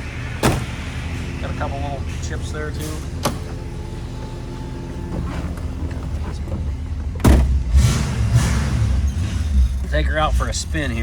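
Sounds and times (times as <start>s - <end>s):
car engine idling: 0.0s - 11.0s
sharp loud thump: 0.4s - 0.8s.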